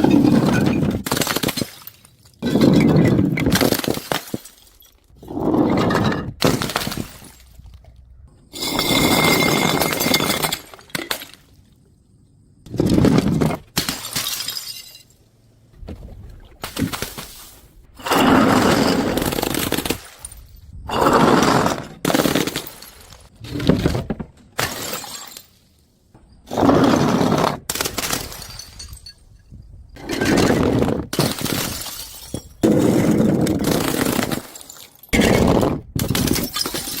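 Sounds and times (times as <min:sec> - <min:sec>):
glass bottles smashing: 0:00.0 - 0:07.6, 0:08.5 - 0:11.4, 0:13.2 - 0:15.2, 0:22.0 - 0:23.8, 0:24.6 - 0:25.6, 0:27.8 - 0:37.0.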